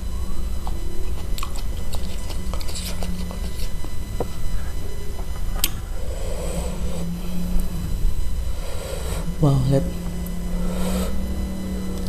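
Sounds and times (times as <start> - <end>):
steady low hum: 0.0 - 12.0
chewing and biting: 0.6 - 4.0.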